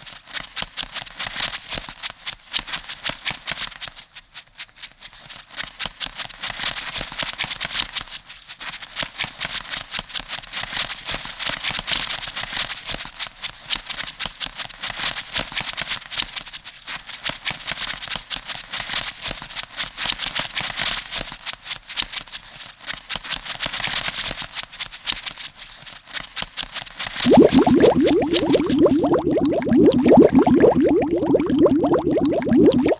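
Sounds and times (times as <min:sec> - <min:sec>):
low bubbling: 0:27.2 - 0:32.9.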